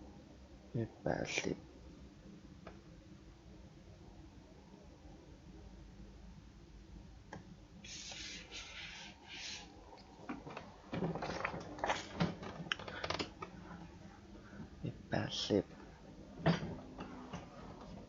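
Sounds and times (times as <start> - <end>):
brief hissing: 7.8 - 9.8.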